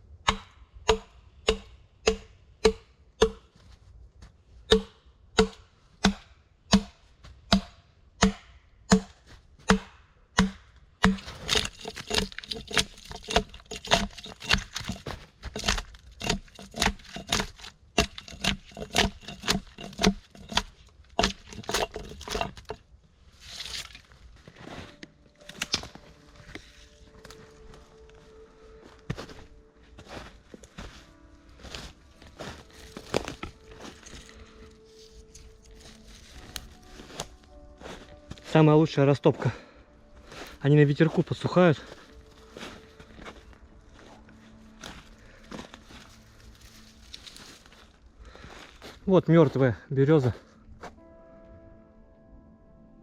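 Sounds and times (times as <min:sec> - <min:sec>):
axe chopping wood: 0:00.3 - 0:03.4, 0:04.7 - 0:22.8
wood splintering: 0:10.4 - 0:22.8, 0:23.4 - 0:24.2, 0:25.4 - 0:26.6.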